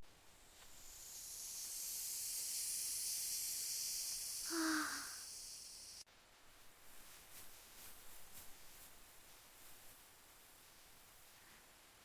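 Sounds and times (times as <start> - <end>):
rain hissing: 0.3 - 6.1.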